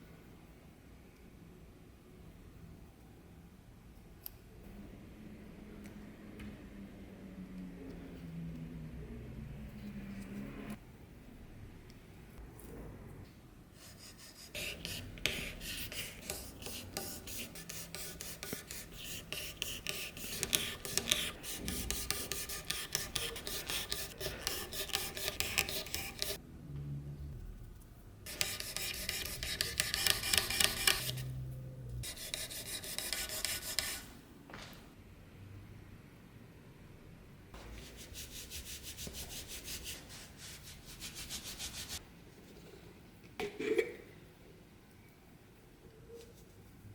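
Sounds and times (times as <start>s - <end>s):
sandpaper on rusty steel: 28.3s - 31.3s, 32.0s - 34.0s, 37.8s - 42.0s.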